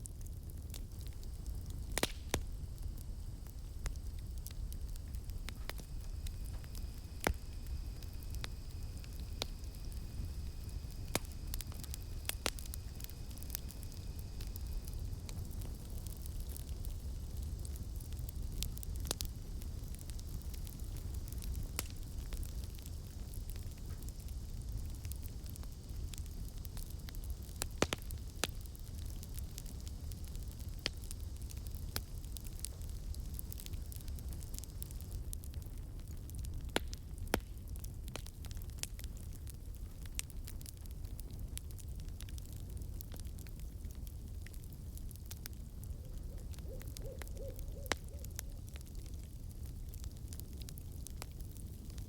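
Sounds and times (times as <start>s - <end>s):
burning wood pops: 0.0s - 52.0s
campfire crackling: 0.0s - 52.0s
faint high insect drone: 0.2s - 35.4s.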